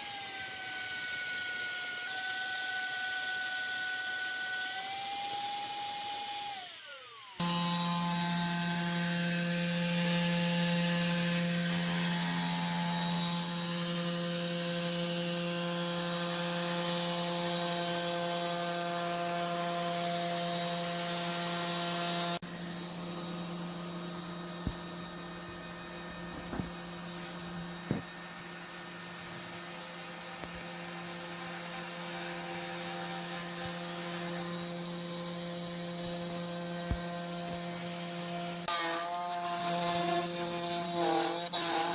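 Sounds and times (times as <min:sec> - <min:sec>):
high-pitched motor whine: 0:00.0 - 0:41.9
low steady motor hum: 0:22.4 - 0:30.3.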